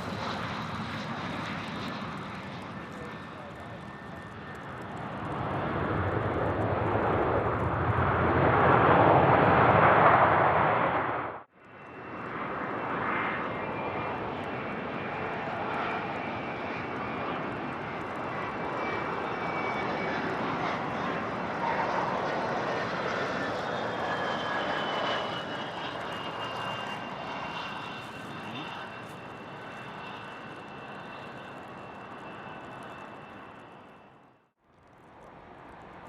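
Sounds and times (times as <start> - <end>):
jet engines passing close: 0.0 - 36.0
steady jet noise: 4.5 - 13.3.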